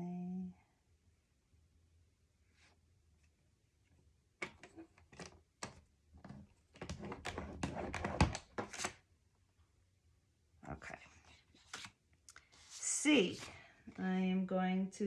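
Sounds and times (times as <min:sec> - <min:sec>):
paper rustling: 0:06.3 - 0:09.0, 0:11.3 - 0:13.6.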